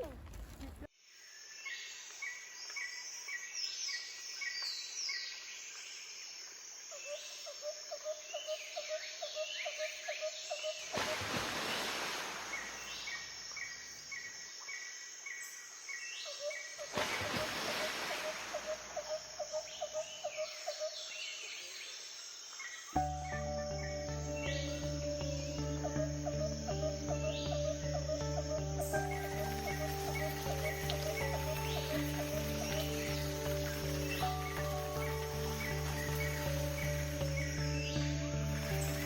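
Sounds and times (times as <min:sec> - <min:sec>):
birds chirping and whistling: 0:23.0 - 0:39.0
low pulsed bird trill: 0:23.0 - 0:39.0.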